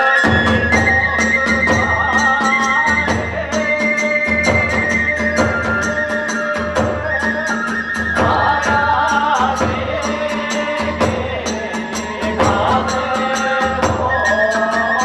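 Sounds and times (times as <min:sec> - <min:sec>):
bamboo flute melody: 0:00.0 - 0:15.0
low drum beat: 0:08.1 - 0:14.2.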